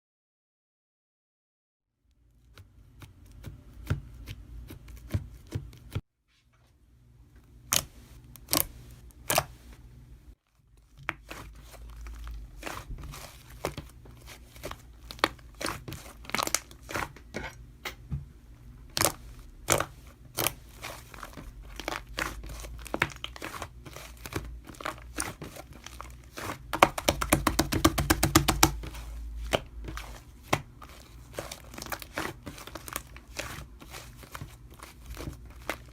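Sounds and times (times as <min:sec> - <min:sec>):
crinkly material crinkling: 0:10.4 - 0:17.2, 0:19.0 - 0:27.4, 0:28.7 - 0:35.9
sharp taps and clicks: 0:26.8 - 0:28.8.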